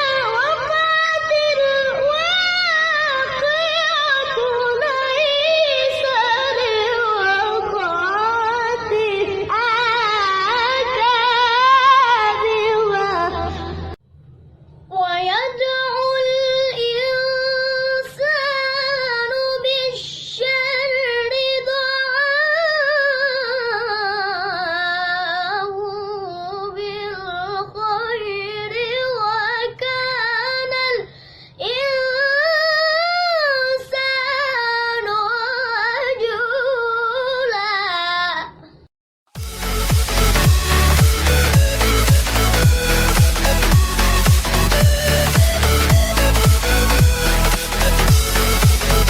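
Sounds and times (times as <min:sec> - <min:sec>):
boy reciting melodically: 0:00.0 - 0:14.0, 0:14.9 - 0:38.7.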